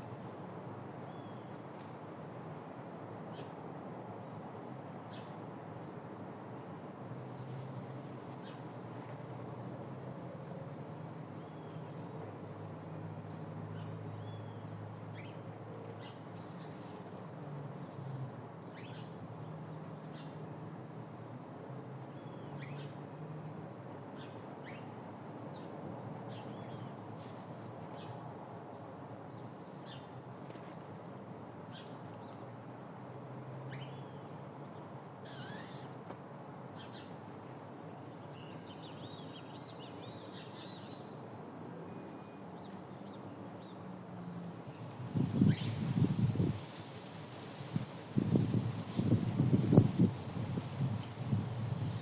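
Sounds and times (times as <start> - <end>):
small birds chirping: 13.8 - 17.1, 35.2 - 36.0.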